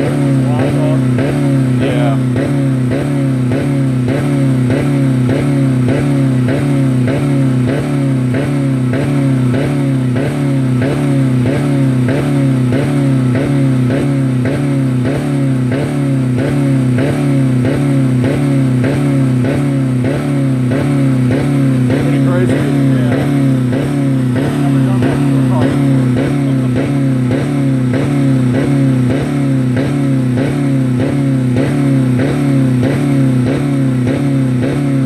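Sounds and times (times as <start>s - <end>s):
car engine hitting rev limiter: 0.0s - 35.0s.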